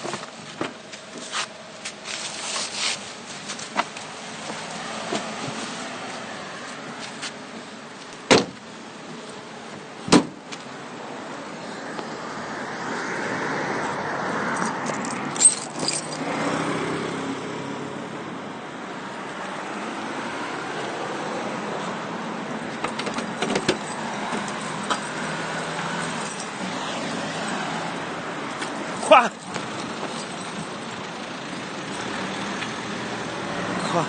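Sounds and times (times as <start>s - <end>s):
car passing: 11.0s - 22.8s, 23.4s - 34.0s.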